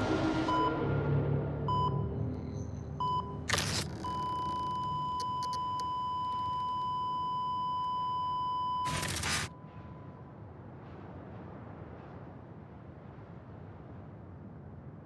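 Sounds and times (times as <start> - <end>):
rushing noise bursts: 0.0 - 4.2, 8.9 - 9.5
long flatline tone: 0.0 - 9.5
heart monitor beep: 1.7 - 9.6.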